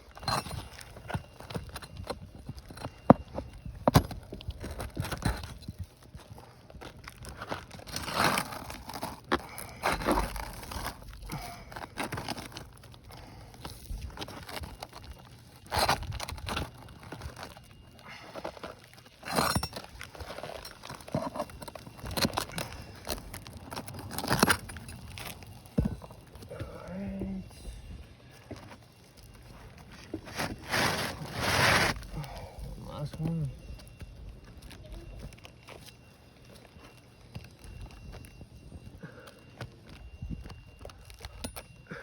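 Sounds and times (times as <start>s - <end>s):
shingles tearing and crumbling: 0.0s - 27.2s, 28.3s - 38.2s
metal bar scraping under shingles: 29.8s - 32.1s.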